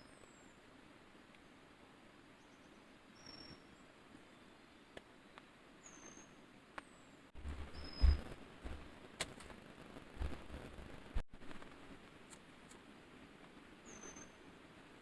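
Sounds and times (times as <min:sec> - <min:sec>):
forest ambience: 0:00.0 - 0:15.0
high bird chirps: 0:05.8 - 0:06.4, 0:07.7 - 0:08.2, 0:13.8 - 0:14.4
loud thump: 0:07.4 - 0:08.8
low rumble: 0:07.4 - 0:09.0.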